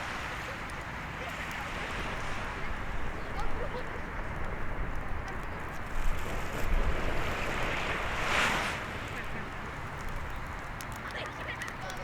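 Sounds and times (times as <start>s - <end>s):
sea waves washing on shore: 0.0s - 12.0s
wind rumble on microphone: 1.6s - 10.9s.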